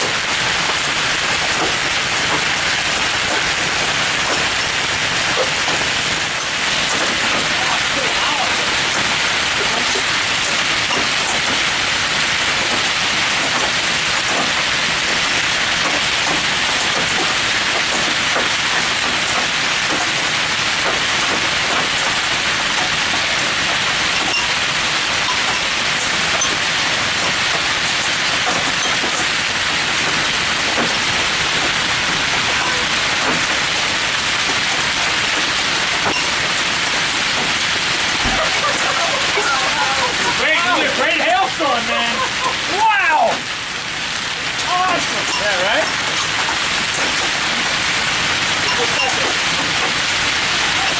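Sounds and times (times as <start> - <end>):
hailstone ticks: 0.0 - 39.7
heavy rain and hail hissing: 0.0 - 50.9.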